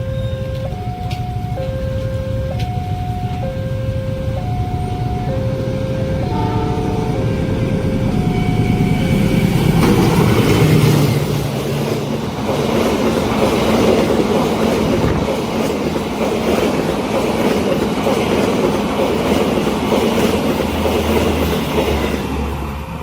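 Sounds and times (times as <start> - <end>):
electronic warning tones: 0.0 - 10.1
train wheels clattering: 5.3 - 22.6.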